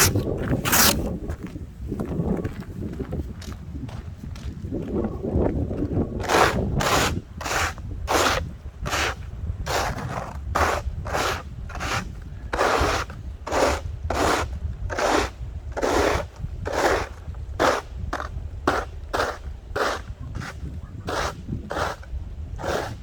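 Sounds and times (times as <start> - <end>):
shovel scraping snow: 0.0 - 1.2, 6.3 - 17.9.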